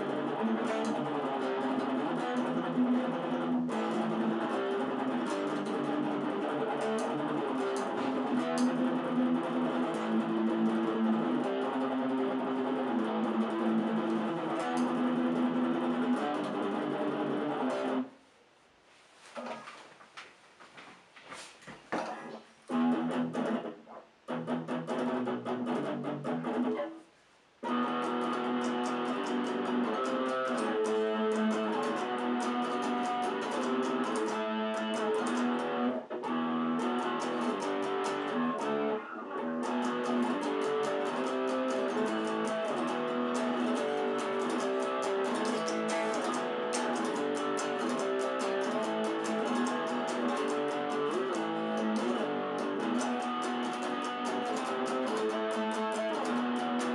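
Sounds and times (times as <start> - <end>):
electric guitar riffs and chords: 0.0 - 18.1, 22.2 - 27.0, 27.6 - 56.9.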